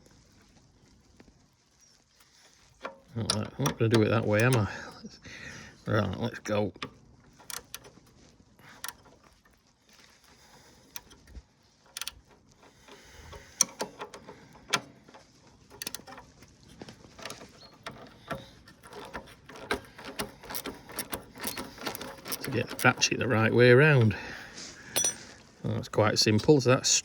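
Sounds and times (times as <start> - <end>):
spanners clinking on metal: 2.8 - 5.1, 17.1 - 25.5
socket ratchet clicking: 7.4 - 7.8, 17.2 - 23.1.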